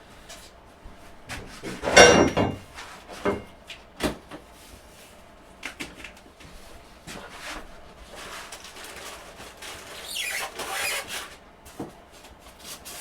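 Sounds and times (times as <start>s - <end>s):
sharp knocks: 1.8s - 2.7s
packaging scraping: 8.1s - 11.4s
squeaky scrape: 8.2s - 11.3s.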